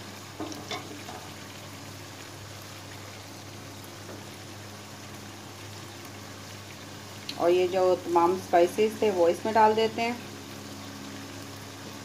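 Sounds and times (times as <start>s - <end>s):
meat bubbling in a pan: 0.0s - 12.0s.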